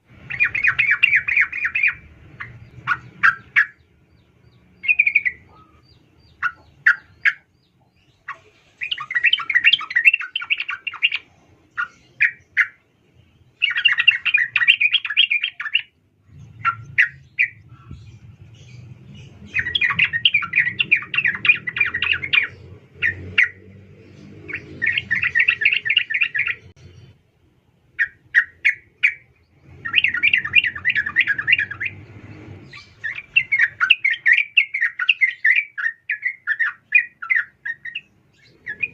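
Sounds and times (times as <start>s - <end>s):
bulbul chattering calls: 0.2s - 12.8s, 13.6s - 27.0s, 28.0s - 32.0s, 32.6s - 38.9s
low rumble: 16.1s - 25.3s.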